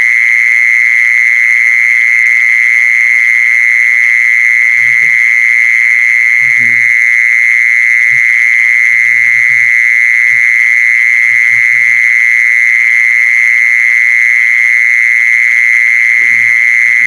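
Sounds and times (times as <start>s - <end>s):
high-pitched trilling call: 16.1s - 17.0s.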